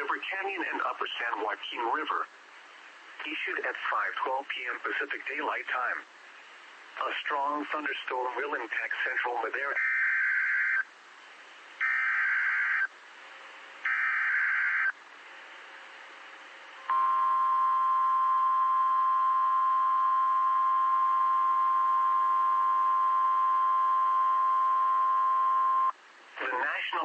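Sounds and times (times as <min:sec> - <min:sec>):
loud warning alarm tone: 0:11.8 - 0:12.9, 0:13.9 - 0:14.9.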